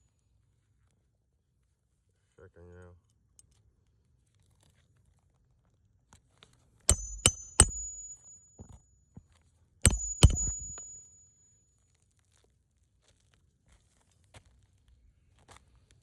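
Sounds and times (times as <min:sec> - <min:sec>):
hammer striking roofing nail: 0:06.9 - 0:08.3, 0:09.9 - 0:11.1
high metallic ring: 0:06.9 - 0:08.9, 0:09.9 - 0:11.7.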